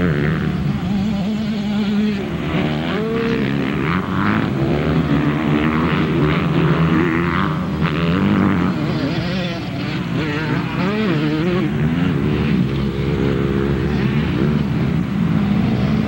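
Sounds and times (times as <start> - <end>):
motocross motorcycle engines revving: 0.0 - 16.0.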